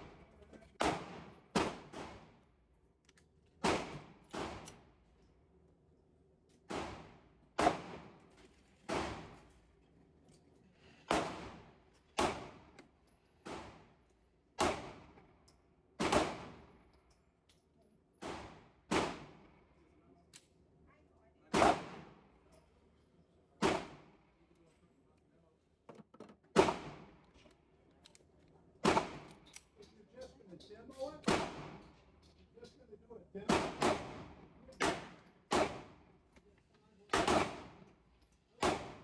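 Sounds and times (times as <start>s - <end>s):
pistol shots echoing: 31.2s - 31.8s, 33.5s - 35.9s, 37.1s - 37.7s.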